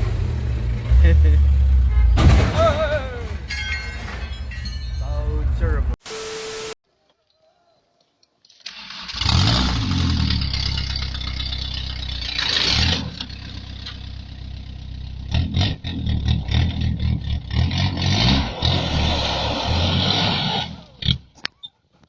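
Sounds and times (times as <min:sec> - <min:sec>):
engine starting and revving: 0:00.0 - 0:02.4, 0:08.7 - 0:21.2.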